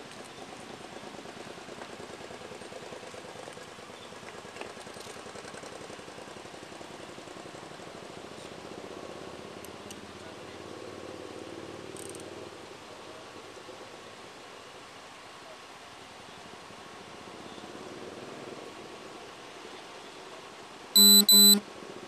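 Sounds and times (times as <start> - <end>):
vehicle engine idling: 0.0 - 14.8.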